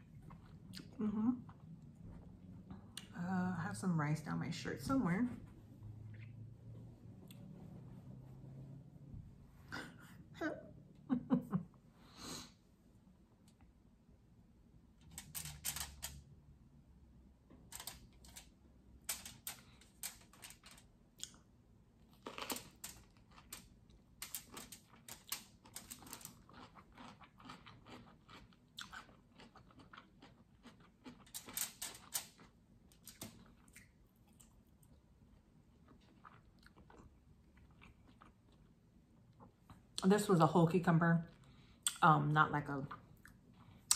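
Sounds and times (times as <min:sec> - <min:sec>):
chewing and crunching: 0:00.0 - 0:02.3, 0:19.3 - 0:40.0.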